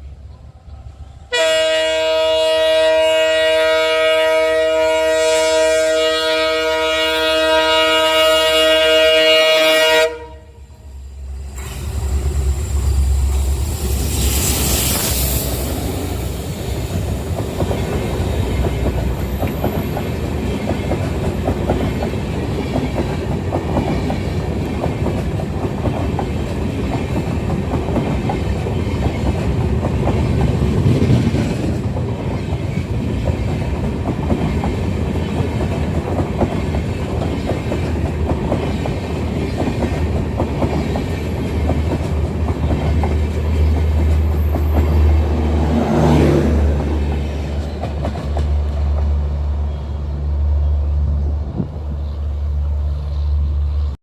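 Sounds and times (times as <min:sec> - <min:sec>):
train rumbling past: 0:00.0 - 0:54.0
brief hiss: 0:11.0 - 0:16.5
wheels clacking over rail joints: 0:15.7 - 0:49.3.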